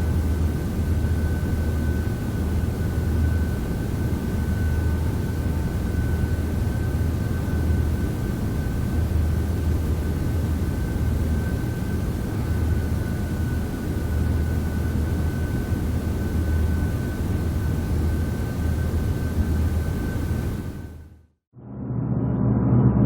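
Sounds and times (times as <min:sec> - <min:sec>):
low machine drone: 0:00.0 - 0:23.0.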